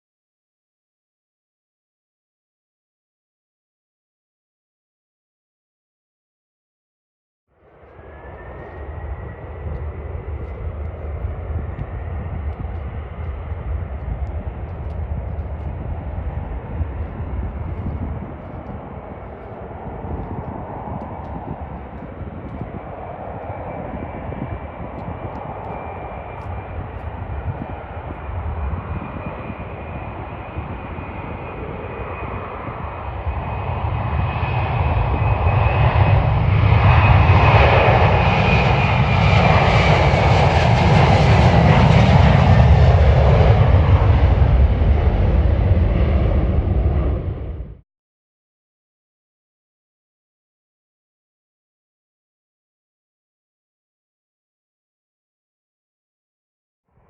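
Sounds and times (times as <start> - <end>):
jet engines whining and rumbling: 7.6 - 47.8.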